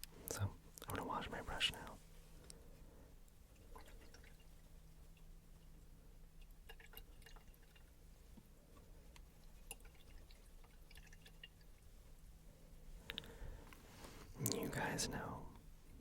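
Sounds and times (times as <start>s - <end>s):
water dripping: 3.3s - 12.2s.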